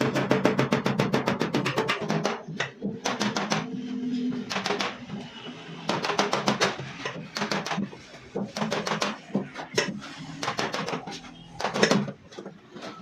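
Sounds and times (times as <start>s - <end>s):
hammer tapping sheet metal: 0.0s - 3.8s, 5.8s - 12.2s.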